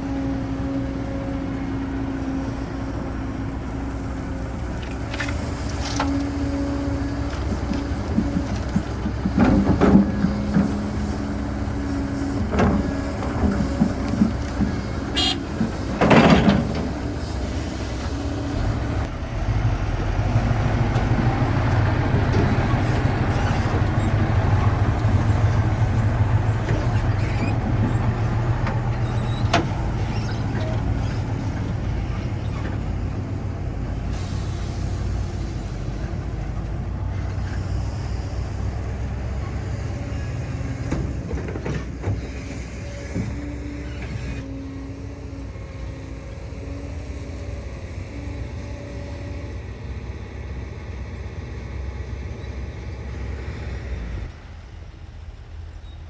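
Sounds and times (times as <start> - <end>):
diesel engine low rumble: 0.0 - 56.0.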